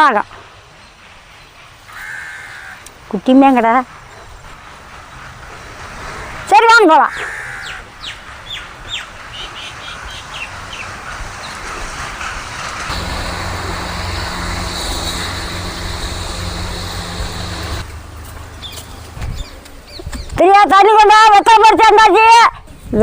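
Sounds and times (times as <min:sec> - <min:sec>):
small birds chirping: 0:07.2 - 0:11.6, 0:18.5 - 0:20.4
low motor hum: 0:12.9 - 0:19.7.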